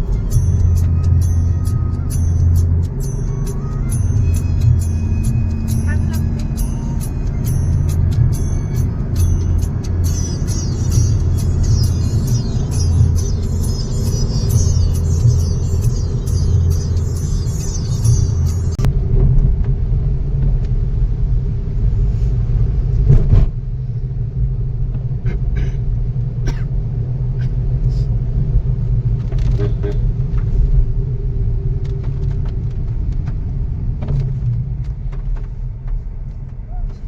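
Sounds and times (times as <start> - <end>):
vehicle driving rumble: 0.0 - 37.0
loud thump: 23.1 - 23.6.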